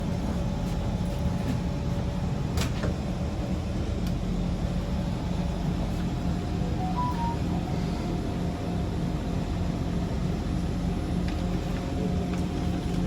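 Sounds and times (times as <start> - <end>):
low hum inside train carriage: 0.0 - 13.0.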